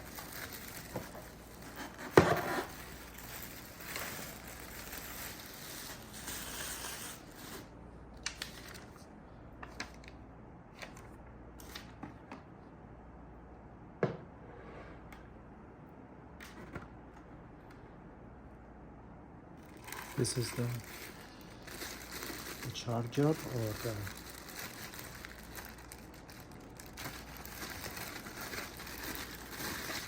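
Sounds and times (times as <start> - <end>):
packaging rustling: 0.0 - 9.1, 19.6 - 30.0.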